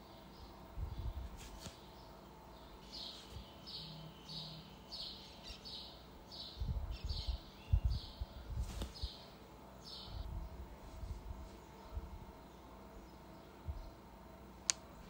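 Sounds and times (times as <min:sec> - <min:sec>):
bird chirping: 0:00.0 - 0:10.4.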